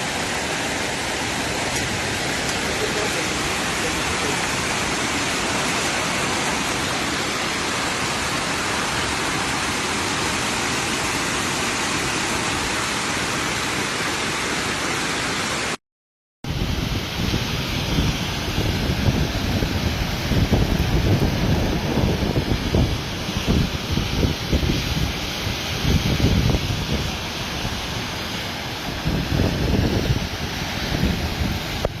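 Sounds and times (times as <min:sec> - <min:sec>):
hail and rain pelting down: 0:00.1 - 0:10.5, 0:16.8 - 0:32.0
wind buffeting microphone: 0:16.5 - 0:32.0.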